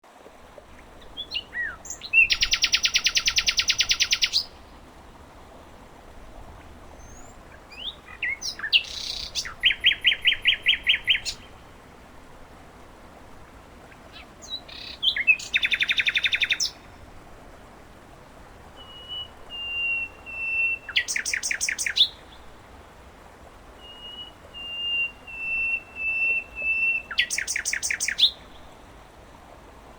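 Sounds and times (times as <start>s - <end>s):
flowing water: 0.0s - 29.9s
nightingale singing: 1.0s - 4.6s, 7.0s - 11.5s, 14.1s - 16.9s, 18.8s - 22.4s, 23.8s - 28.7s.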